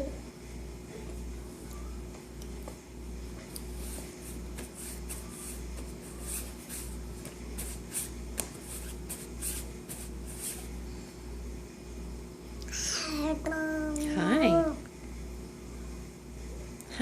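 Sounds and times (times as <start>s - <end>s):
scratchy rustling: 3.7s - 10.7s.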